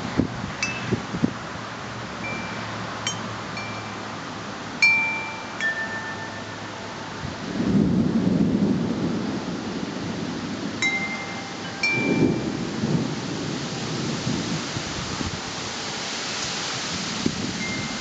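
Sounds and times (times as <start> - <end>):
steady rain hiss: 0.0 - 18.0
wind chimes ringing: 0.6 - 1.1, 2.2 - 7.2, 10.8 - 12.7, 17.6 - 18.0
low rumble of thunder: 7.2 - 10.8, 11.5 - 15.6.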